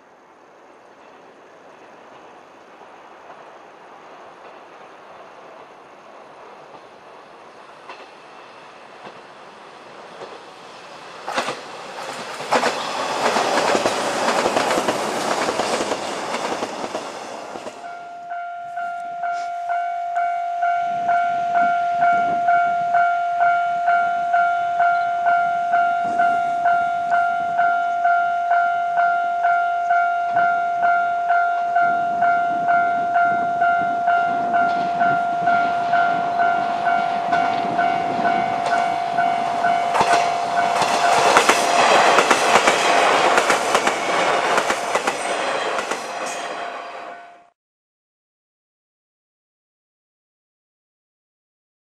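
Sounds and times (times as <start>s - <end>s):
electric train passing: 0.0s - 47.6s
second train approaching: 0.0s - 47.6s
wheels clicking over rail joints: 7.6s - 8.3s, 8.9s - 17.9s, 34.6s - 46.6s
level crossing bell dinging: 17.8s - 41.5s.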